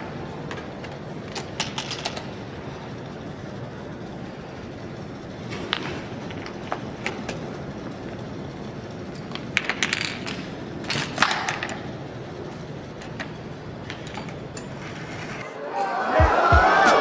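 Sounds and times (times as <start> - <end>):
steady background hum: 0.0 - 17.0
domino parts clicking and clattering: 1.3 - 2.4, 9.2 - 11.9.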